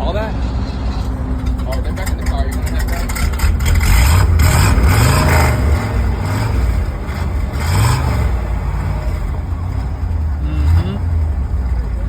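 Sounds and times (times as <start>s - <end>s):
car engine idling: 0.0s - 12.0s
engine throttle blip: 8.2s - 12.0s.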